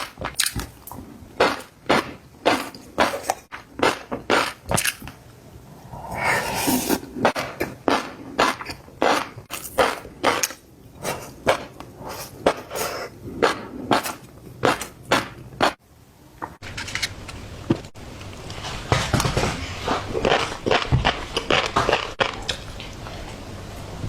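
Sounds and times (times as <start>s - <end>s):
chewing and crunching food: 19.2s - 23.4s.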